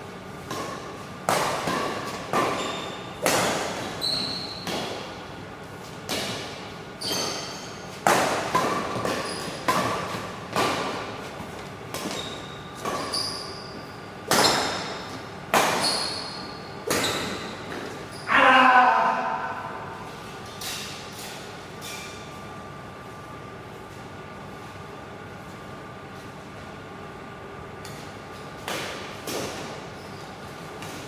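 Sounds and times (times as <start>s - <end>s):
court shoes squeaking: 1.6s - 5.1s, 7.0s - 18.3s, 29.2s - 31.0s.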